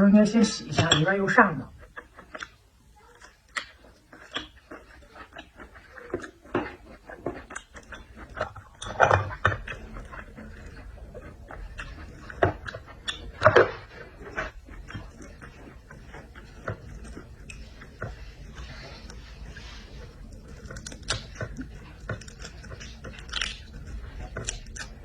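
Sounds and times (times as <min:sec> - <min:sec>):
wet chewing and smacking: 0:00.2 - 0:25.0
small mouth clicks: 0:01.8 - 0:13.5.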